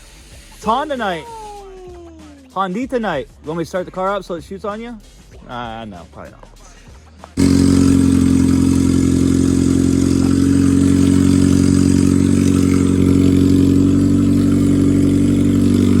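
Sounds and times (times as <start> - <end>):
car engine fast idle: 7.4 - 16.0.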